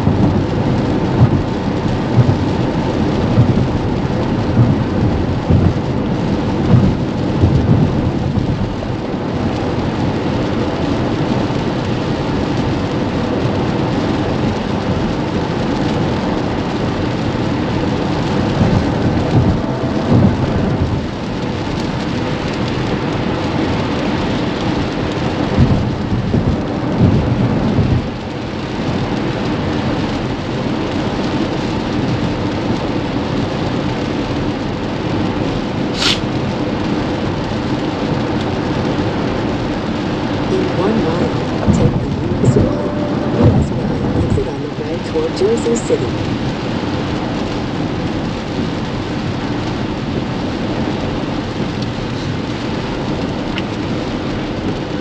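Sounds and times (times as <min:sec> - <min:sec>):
heavy rain on car roof: 0:00.0 - 0:55.0
tyre spray and road noise: 0:34.8 - 0:44.1
brief sharp high sound: 0:36.0 - 0:36.3
low swells: 0:40.5 - 0:45.5.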